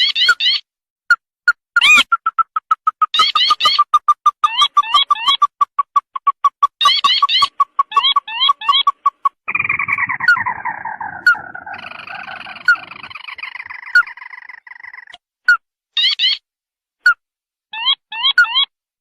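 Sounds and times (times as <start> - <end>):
sharp bird pips: 1.5 - 15.2
quick rising bird chirps: 1.8 - 15.1
descending trilling bird whinny: 9.5 - 15.1.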